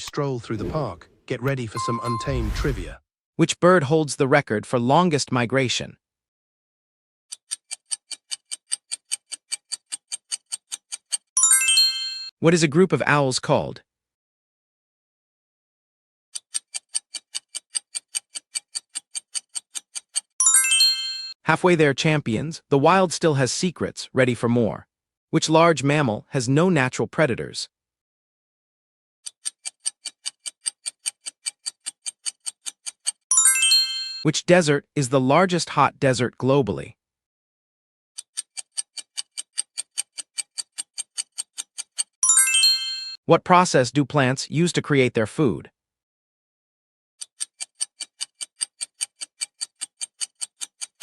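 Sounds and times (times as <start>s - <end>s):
fast clock ticks: 7.3s - 11.4s, 16.4s - 20.4s, 29.2s - 33.3s, 38.2s - 42.2s, 47.2s - 51.0s.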